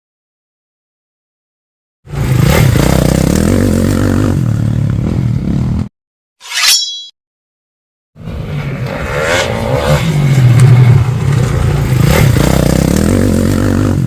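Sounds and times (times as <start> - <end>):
motorcycle engine revving: 2.1 - 5.9, 8.2 - 14.0.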